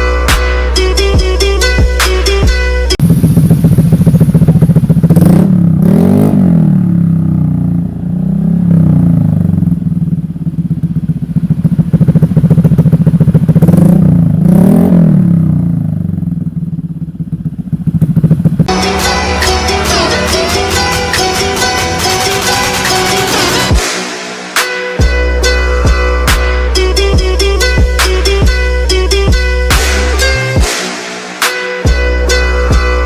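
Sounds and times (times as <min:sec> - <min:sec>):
motorcycle engine idling and revving: 0:00.0 - 0:33.0.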